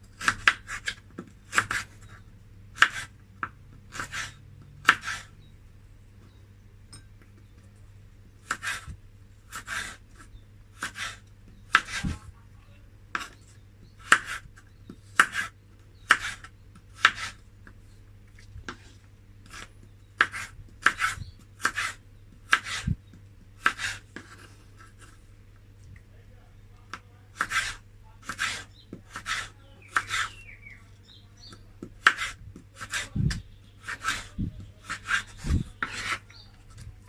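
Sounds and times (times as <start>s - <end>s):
knife chopping vegetables: 0.2s - 1.9s, 2.8s - 5.3s, 8.4s - 8.9s, 9.5s - 10.0s, 10.8s - 12.2s, 14.0s - 17.4s, 19.5s - 22.9s, 23.6s - 25.1s, 26.9s - 30.4s, 31.5s - 36.2s.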